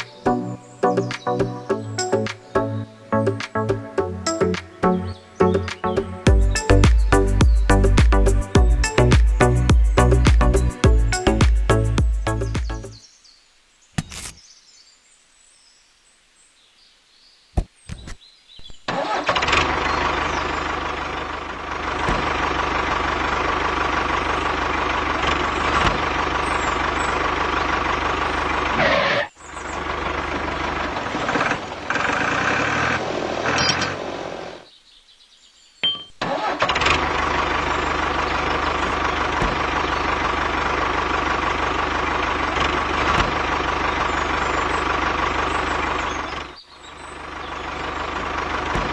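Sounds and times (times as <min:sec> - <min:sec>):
small tractor motor running: 0:18.9 - 0:34.6, 0:36.2 - 0:48.9.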